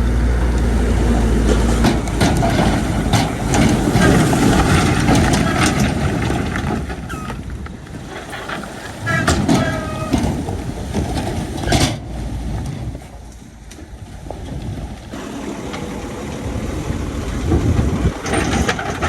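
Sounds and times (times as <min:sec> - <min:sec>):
diesel engine hum: 0:00.0 - 0:19.0
machinery clattering with metallic knocks: 0:00.4 - 0:19.0.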